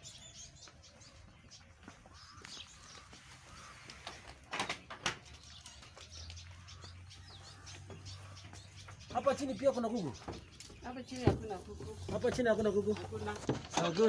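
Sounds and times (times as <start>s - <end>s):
clattering knocks: 11.2s - 14.0s.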